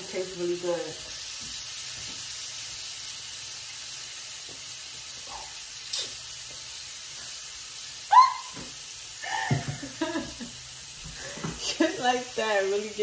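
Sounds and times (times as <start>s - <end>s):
chicken frying in oil: 0.0s - 13.0s
woman laughing: 9.2s - 10.5s.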